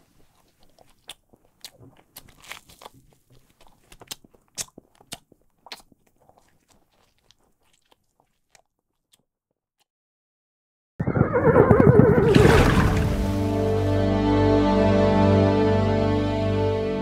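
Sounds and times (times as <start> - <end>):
crunchy chewing of food: 0.0 - 9.9.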